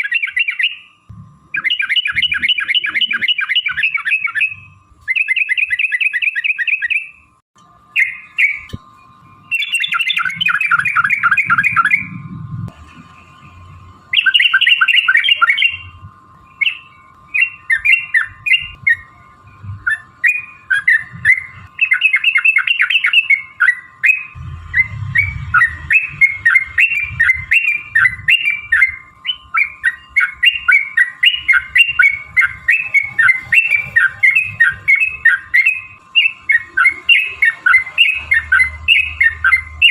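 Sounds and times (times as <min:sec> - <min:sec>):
faint steady hum: 0:00.0 - 0:39.9
bulbuls chattering: 0:14.1 - 0:39.9.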